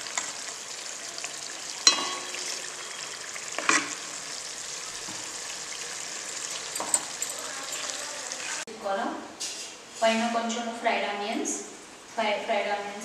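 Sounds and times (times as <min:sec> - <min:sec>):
food sizzling in a pot: 0:00.0 - 0:08.7
metal utensil knocking on pot: 0:01.8 - 0:02.4, 0:06.7 - 0:08.0.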